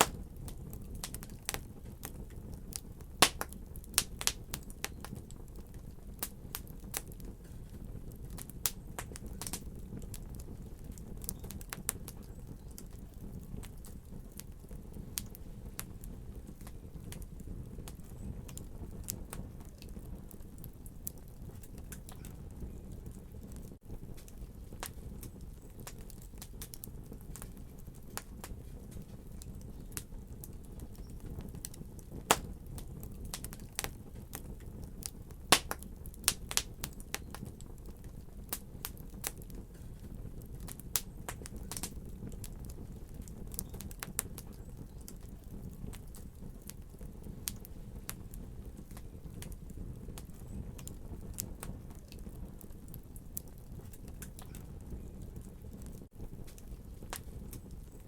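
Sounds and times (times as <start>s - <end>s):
fire crackling and popping: 0.0s - 58.0s
low rumble of flames: 0.0s - 58.0s.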